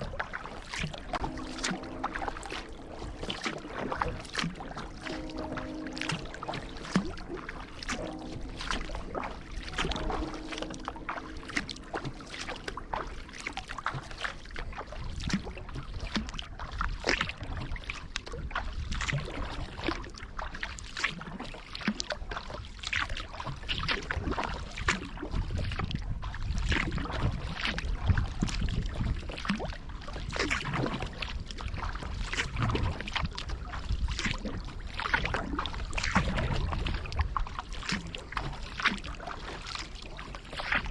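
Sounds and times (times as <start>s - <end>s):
paddle splashing in water: 0.0s - 40.9s
low rumble: 0.9s - 15.6s.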